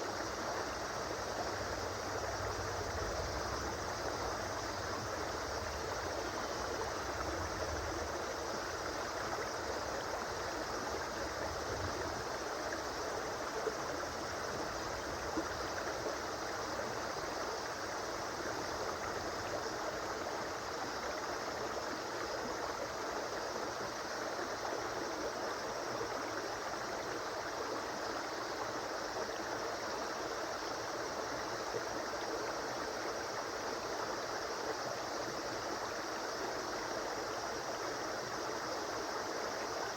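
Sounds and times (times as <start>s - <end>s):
faint water gurgling: 0.0s - 39.9s
river flowing: 0.0s - 39.9s.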